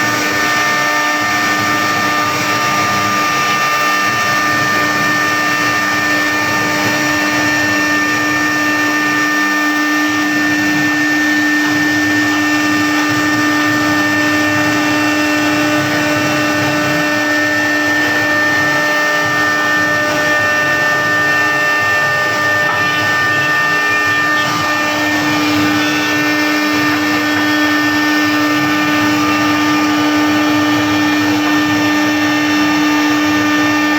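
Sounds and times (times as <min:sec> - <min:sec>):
machine spindle whine: 0:00.0 - 0:33.9
loud rushing noise: 0:20.5 - 0:30.2.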